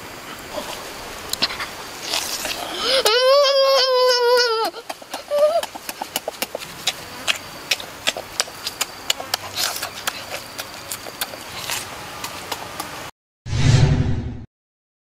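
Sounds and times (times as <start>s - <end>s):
person chewing with lip-smacking: 0.6s - 3.2s, 4.4s - 13.0s.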